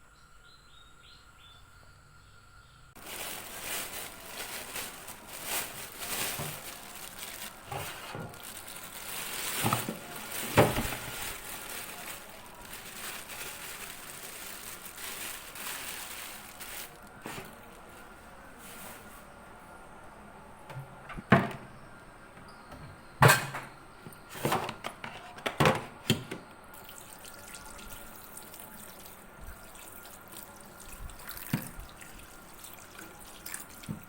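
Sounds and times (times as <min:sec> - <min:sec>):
rustling and crinkling: 0:03.0 - 0:19.6, 0:24.1 - 0:25.4.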